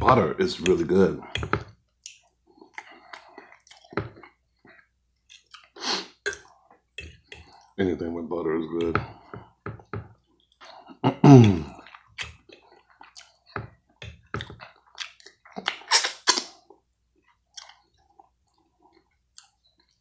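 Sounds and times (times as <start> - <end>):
wet chewing: 0.4 - 7.8, 8.7 - 20.0.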